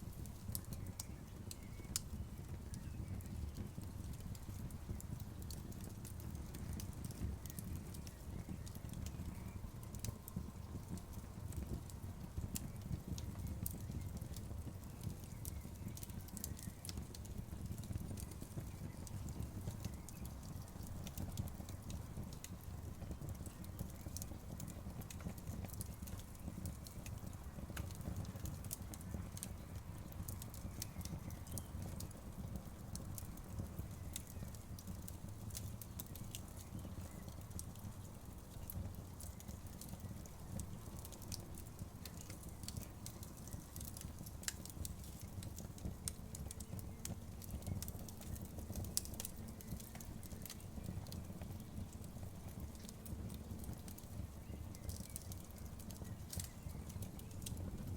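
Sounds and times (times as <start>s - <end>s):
bonfire crackling and popping: 0.0s - 57.9s
low rumble of burning fire: 0.0s - 57.9s.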